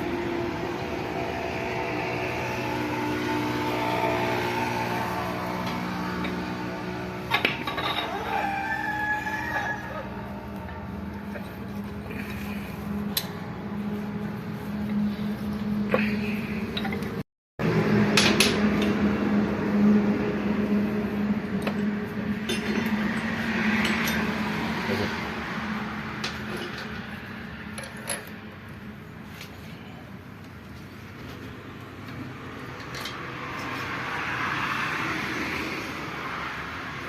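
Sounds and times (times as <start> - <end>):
metal tools clinking: 7.3 - 8.3, 21.7 - 24.4, 27.7 - 28.4
steady low hum: 9.8 - 23.4.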